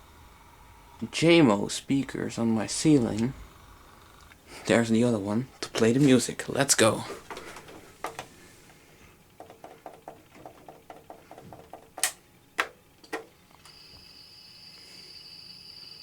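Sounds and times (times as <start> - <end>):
small rapid clicks: 9.3 - 13.7
loud clicks: 12.0 - 13.3
high-pitched whine: 13.4 - 16.0.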